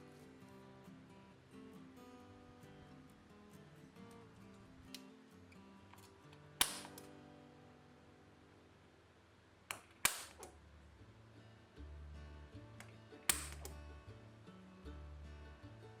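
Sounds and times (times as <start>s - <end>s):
soft background music: 10.6s - 16.0s.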